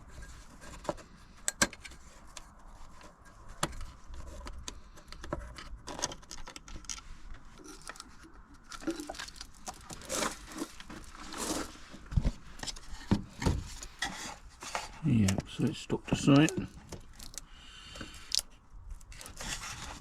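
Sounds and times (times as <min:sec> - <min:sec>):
hands handling engine parts: 0:00.1 - 0:20.0.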